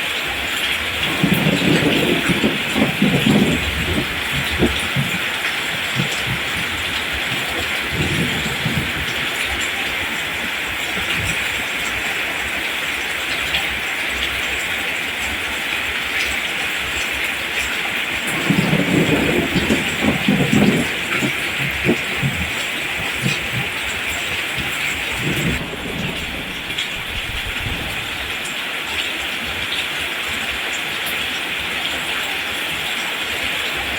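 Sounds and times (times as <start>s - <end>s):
steady rain falling: 0.0s - 33.9s
low thunder rumble: 0.5s - 14.4s, 16.8s - 29.8s.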